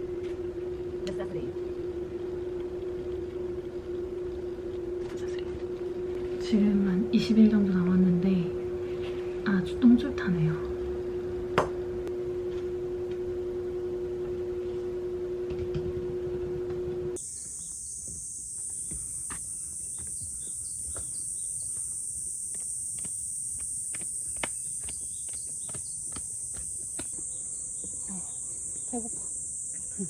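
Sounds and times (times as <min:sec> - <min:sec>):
two-tone low hum: 0:00.0 - 0:30.0
high-pitched insect chorus: 0:17.2 - 0:30.0.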